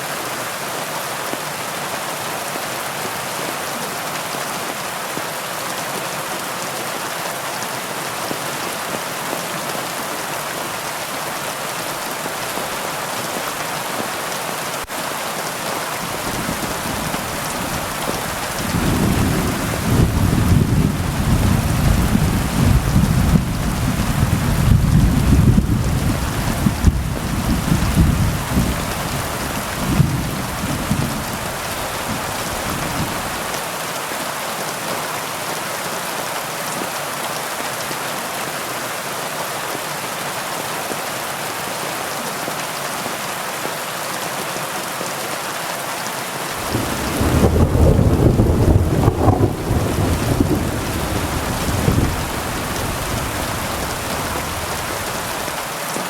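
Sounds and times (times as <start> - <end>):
heavy rain: 0.0 - 56.0
thunder rumbling: 16.1 - 33.4, 46.6 - 55.5.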